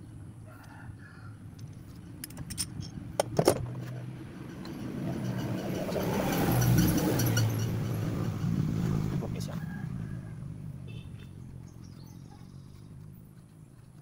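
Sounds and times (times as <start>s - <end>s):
metal engine parts clinking: 1.6s - 5.7s.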